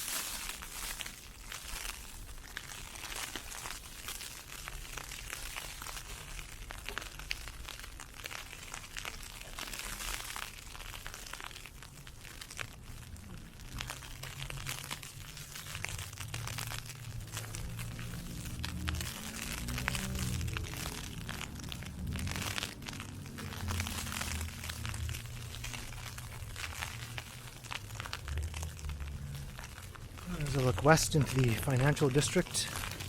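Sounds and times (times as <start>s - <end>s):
low hum: 13.0s - 33.0s.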